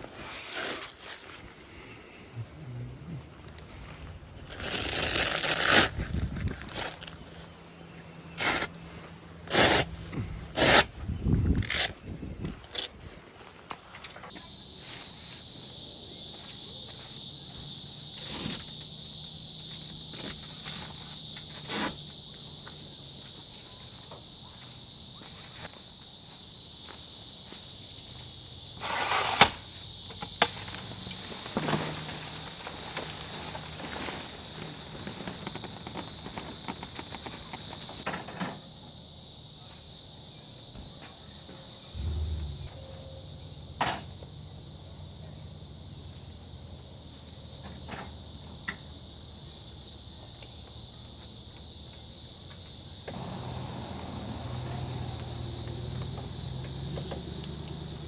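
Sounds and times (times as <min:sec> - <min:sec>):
crickets chirping: 0:14.3 - 0:58.0.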